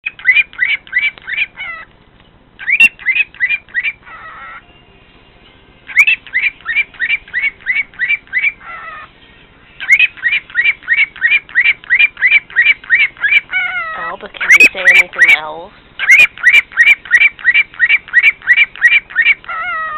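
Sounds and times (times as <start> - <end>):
cockatiel whistling rising notes: 5.9 - 9.1, 9.8 - 13.7.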